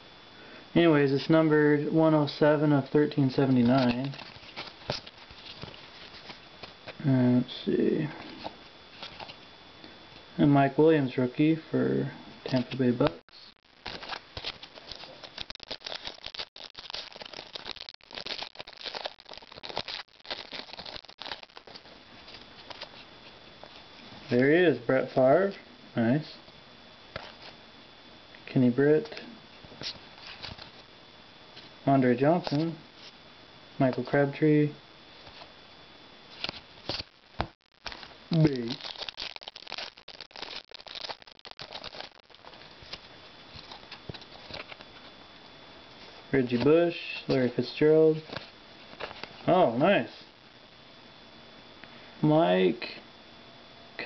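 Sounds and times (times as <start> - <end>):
card wrappers crinkling: 3.4 - 7.0, 8.3 - 9.4, 12.5 - 23.0, 29.8 - 30.8, 32.4 - 33.1, 36.3 - 45.1, 48.2 - 49.4.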